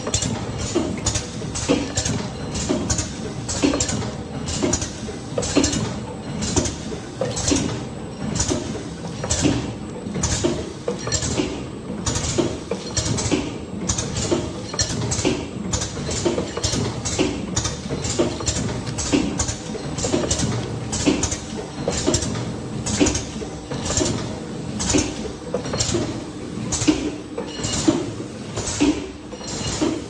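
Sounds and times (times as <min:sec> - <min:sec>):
packaging machine clacking: 0:12.1 - 0:26.1.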